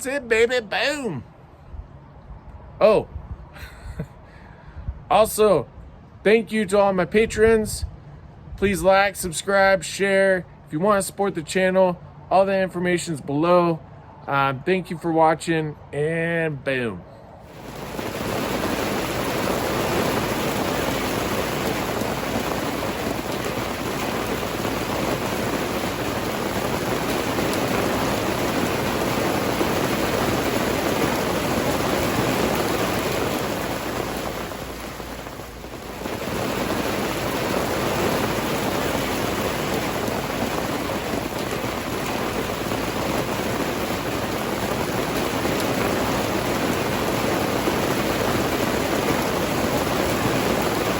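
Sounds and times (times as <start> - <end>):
steady hiss-like rushing noise: 17.4 - 50.9.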